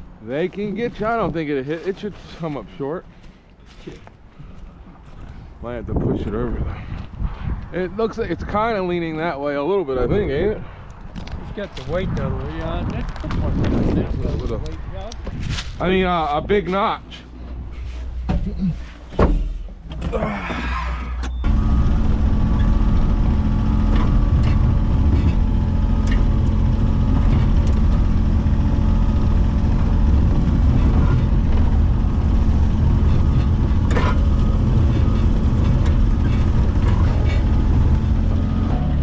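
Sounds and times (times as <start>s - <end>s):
large engine running: 16.2s - 39.0s.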